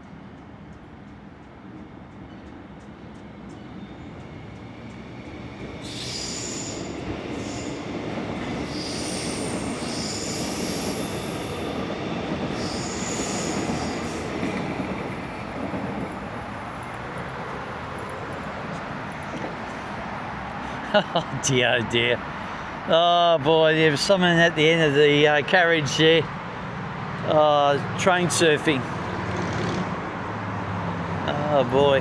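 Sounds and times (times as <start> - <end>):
train wheels squealing: 3.5 - 11.9, 12.5 - 14.6
electric train running: 4.2 - 20.6.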